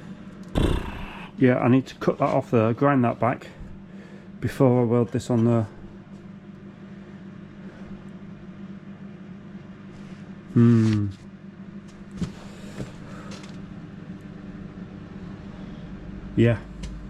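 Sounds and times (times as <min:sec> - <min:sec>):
steady low hum: 0:00.0 - 0:17.0
man's wordless vocal sound: 0:00.6 - 0:01.4, 0:10.6 - 0:11.2.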